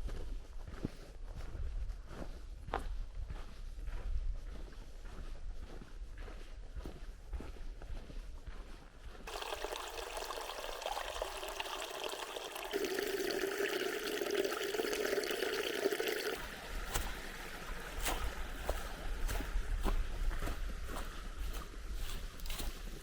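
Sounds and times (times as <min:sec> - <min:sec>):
stream water splashing over rocks: 0:09.3 - 0:19.5.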